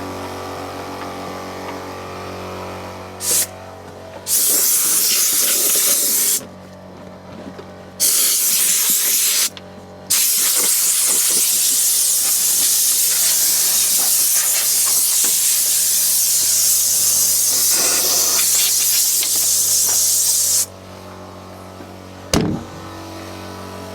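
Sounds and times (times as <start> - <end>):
compressed air hissing from hose: 3.2 - 3.5, 4.3 - 6.4, 8.0 - 9.5, 10.1 - 20.7
steady low hum: 20.7 - 23.9.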